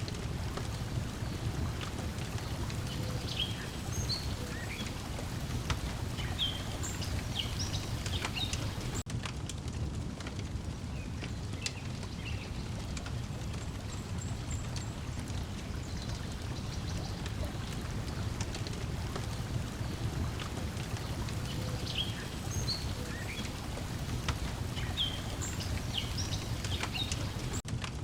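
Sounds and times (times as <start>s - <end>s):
water lapping against shore: 0.0s - 9.1s, 11.2s - 27.6s
wood fire crackling: 0.0s - 28.0s
bird chirps: 2.1s - 9.0s, 20.8s - 27.6s.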